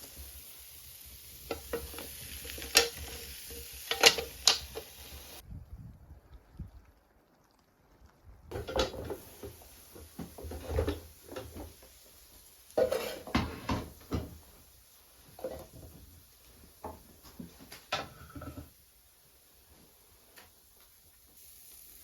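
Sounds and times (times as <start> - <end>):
cookware clinking and clattering: 1.4 - 4.9, 8.5 - 9.2, 12.8 - 14.3, 17.8 - 18.7.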